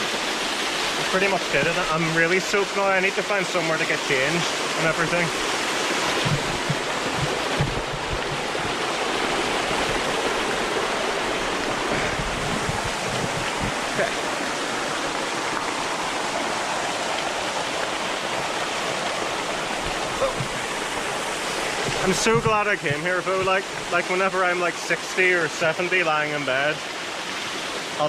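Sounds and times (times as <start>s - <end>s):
waterfall and stream rushing: 0.0s - 28.0s
low thumps on microphone: 5.3s - 10.4s, 11.9s - 14.2s, 19.8s - 23.9s.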